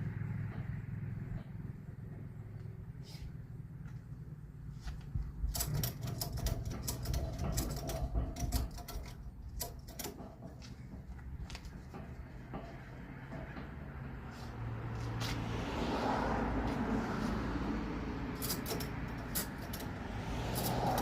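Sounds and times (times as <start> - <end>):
ratchet clicking: 5.5 - 10.6, 18.4 - 21.0.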